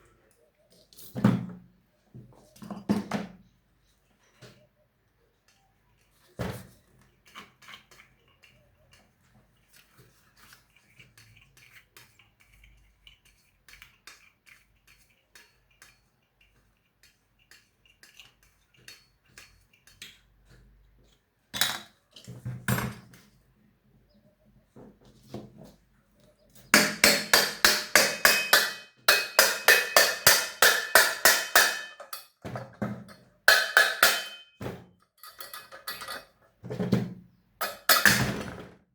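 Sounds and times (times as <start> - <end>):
metal tools clinking: 26.8 - 32.4, 33.1 - 34.6, 35.2 - 36.4.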